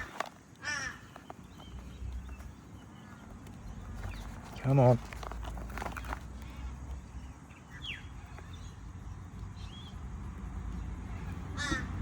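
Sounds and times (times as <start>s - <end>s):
harsh caw-like bird call: 0.6s - 1.3s, 11.6s - 12.0s.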